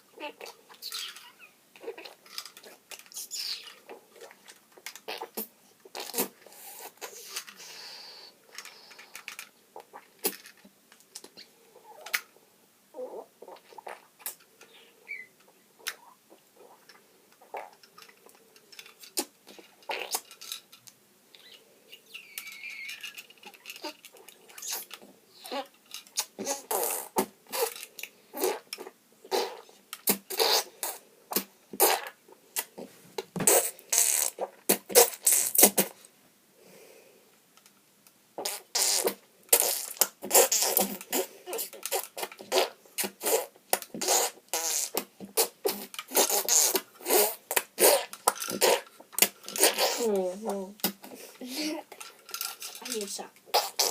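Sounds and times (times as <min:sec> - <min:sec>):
child making mouth sound effects: 0:49.6 - 0:51.9.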